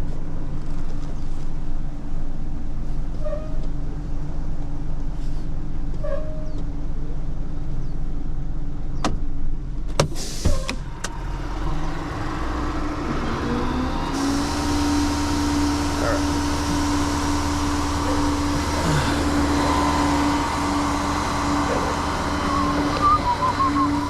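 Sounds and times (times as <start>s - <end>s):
truck engine running: 0.0s - 24.0s
steady whine: 10.9s - 24.0s.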